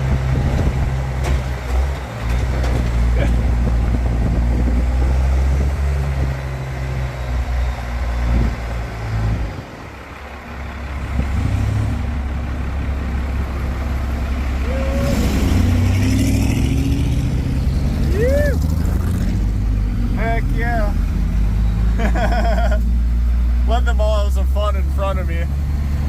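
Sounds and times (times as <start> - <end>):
diesel pickup engine under load: 0.0 - 26.0
truck body knocks and rattles: 0.3 - 4.4.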